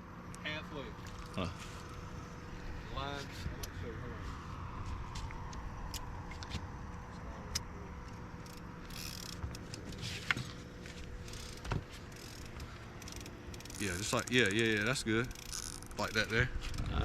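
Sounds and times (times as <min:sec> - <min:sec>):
boat motor running: 0:06.8 - 0:17.0
fishing gear clicks and knocks: 0:08.1 - 0:17.0.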